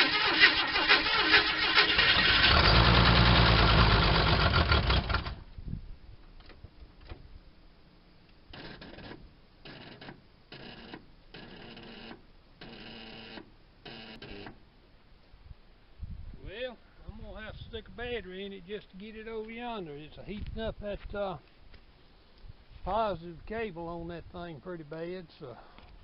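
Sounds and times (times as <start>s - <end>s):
engine starter cranking: 0.0s - 5.4s.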